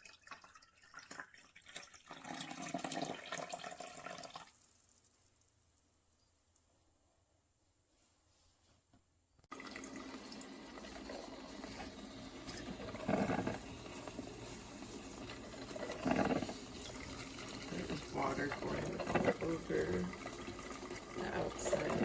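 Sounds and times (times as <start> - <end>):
coffee running into carafe: 0.0 - 4.6, 9.5 - 22.0.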